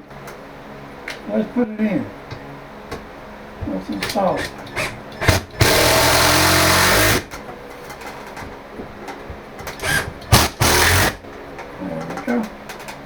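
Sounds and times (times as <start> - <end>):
power drill driving screw: 4.4 - 7.3, 9.8 - 11.2.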